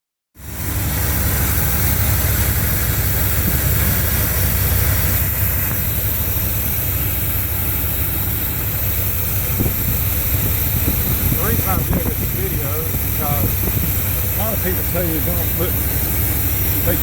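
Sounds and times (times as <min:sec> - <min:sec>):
car engine idling: 0:00.4 - 0:17.0.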